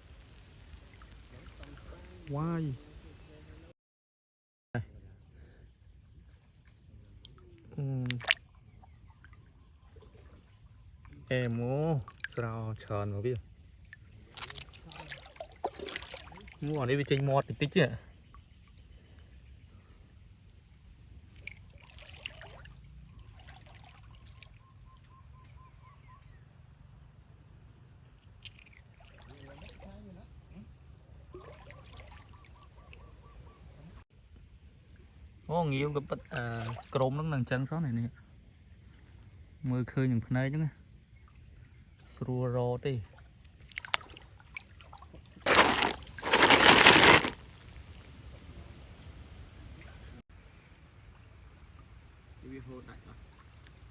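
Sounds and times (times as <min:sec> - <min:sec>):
water splashing: 0:00.0 - 0:03.0, 0:08.0 - 0:08.4, 0:14.4 - 0:17.2, 0:45.5 - 0:47.7
water trickling and sloshing: 0:00.0 - 0:03.0, 0:06.8 - 0:25.1, 0:28.2 - 0:33.2, 0:36.2 - 0:37.2, 0:43.0 - 0:48.0.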